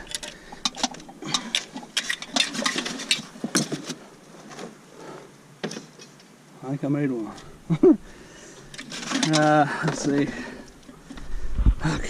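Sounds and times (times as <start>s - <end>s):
metal clinks and scrapes: 0.0s - 4.0s, 8.6s - 11.0s.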